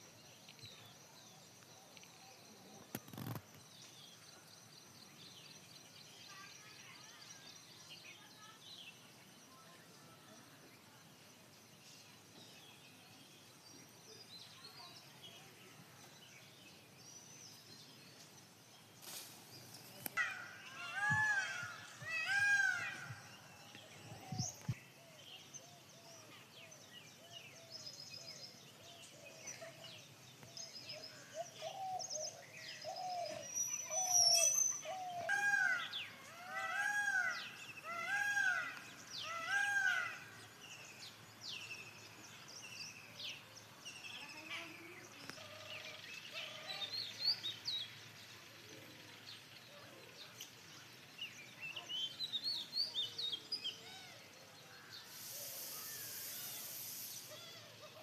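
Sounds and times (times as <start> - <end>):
small birds chirping: 0.0 - 58.0
bird rise-and-fall calls: 19.0 - 49.9, 50.6 - 58.0.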